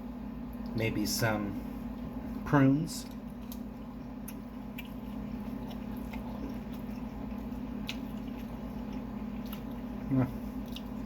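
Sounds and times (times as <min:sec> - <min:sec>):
steady low hum: 0:00.0 - 0:11.0
person chewing food: 0:03.0 - 0:11.0.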